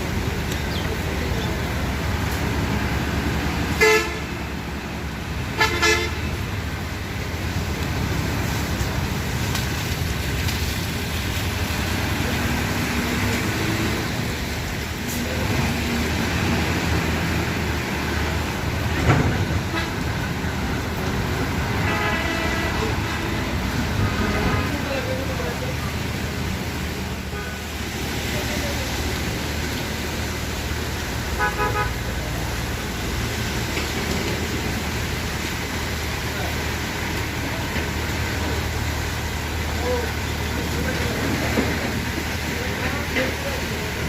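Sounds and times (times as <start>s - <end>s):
bus rumbling on road: 0.0s - 44.0s
traffic noise: 0.0s - 44.0s
vehicle horn honking: 3.8s - 4.3s, 5.6s - 6.2s, 31.4s - 31.9s.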